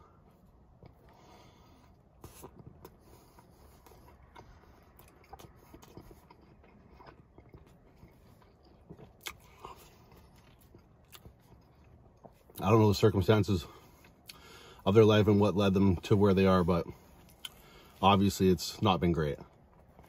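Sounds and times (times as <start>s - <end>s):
person chewing: 0.1s - 12.6s, 13.7s - 14.8s, 16.7s - 18.0s, 19.4s - 20.0s
mouth clicks and smacks: 2.2s - 12.6s.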